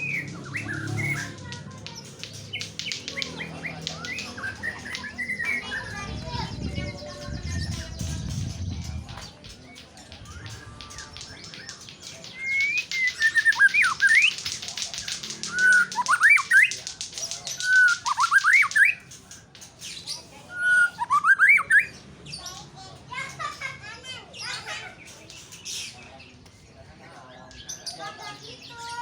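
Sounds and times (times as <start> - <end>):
bird singing whistled phrases: 0.0 - 1.4, 10.2 - 14.5, 15.4 - 16.8, 17.5 - 19.1, 20.4 - 22.0.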